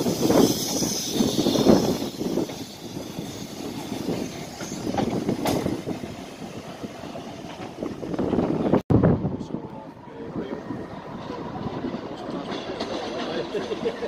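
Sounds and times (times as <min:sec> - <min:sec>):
train wheels rumbling and clicking: 0:00.0 - 0:08.8, 0:09.6 - 0:14.0.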